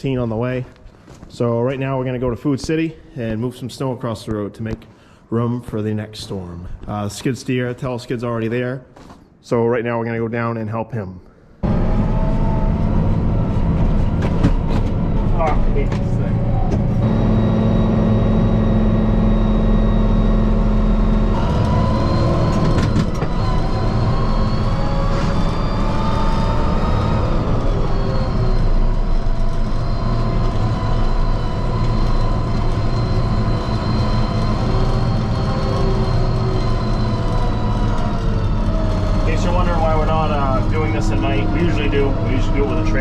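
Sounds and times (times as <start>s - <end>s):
tractor diesel engine running: 11.6s - 43.0s.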